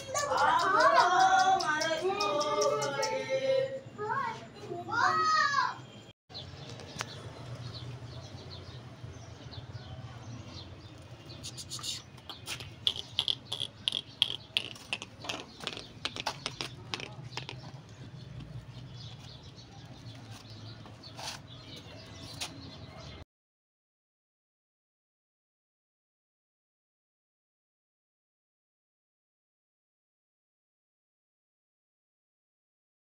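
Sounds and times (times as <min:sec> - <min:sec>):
small birds chirping: 0:00.0 - 0:04.7, 0:06.3 - 0:23.2.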